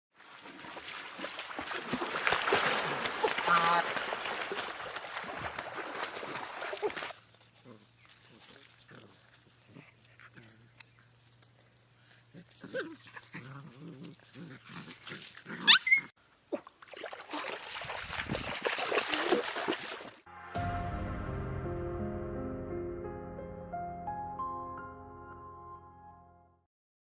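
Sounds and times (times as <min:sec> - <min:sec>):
puppies whimpering and yelping: 0:15.6 - 0:16.1.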